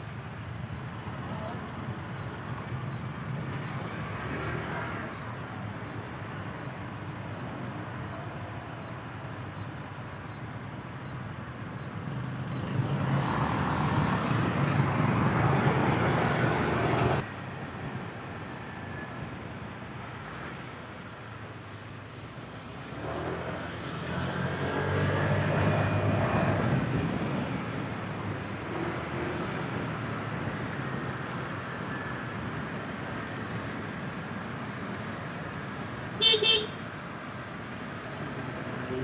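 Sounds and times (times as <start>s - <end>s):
traffic noise: 0.0s - 39.0s
horn beeps: 36.2s - 36.8s.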